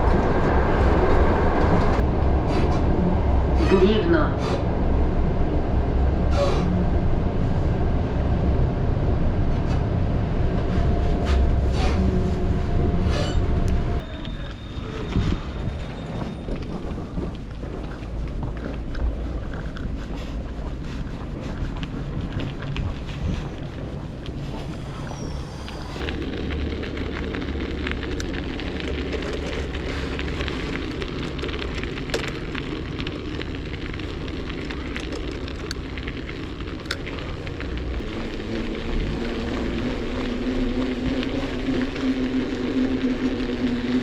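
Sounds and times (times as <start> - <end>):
bicycle tyres crunching snow: 9.4 - 44.0
wind on microphone: 14.7 - 28.4.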